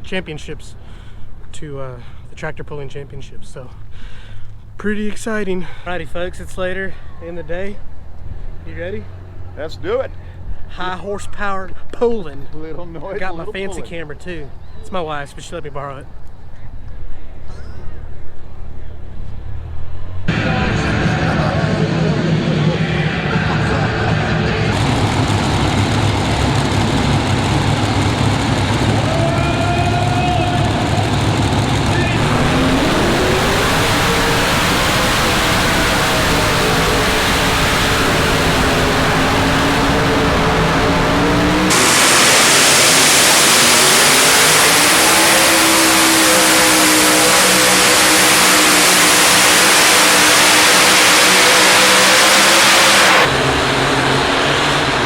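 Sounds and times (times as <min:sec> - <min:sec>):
tractor engine roaring: 0:19.0 - 0:55.0.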